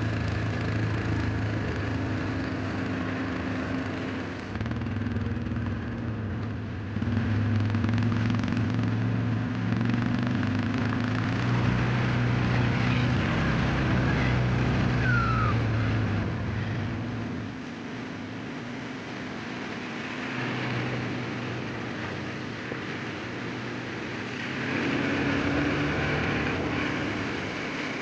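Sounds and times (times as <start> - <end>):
engine running: 0.0 - 28.0
high falling squeak: 15.0 - 15.8.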